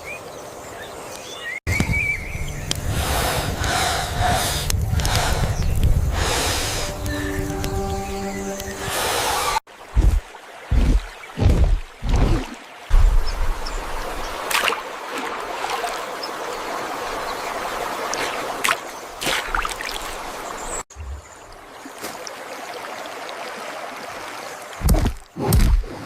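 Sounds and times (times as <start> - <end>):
stream flowing: 2.2 - 25.4
water splashes: 9.5 - 26.0
heavy thuds: 9.9 - 13.3.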